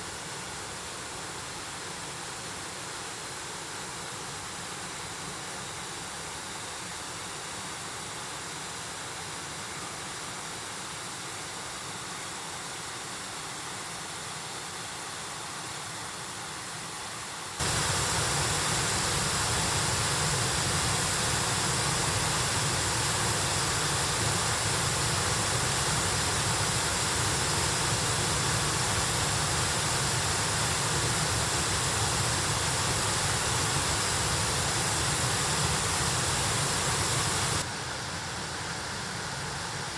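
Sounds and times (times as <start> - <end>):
stream water rushing over rocks: 17.6 - 37.7.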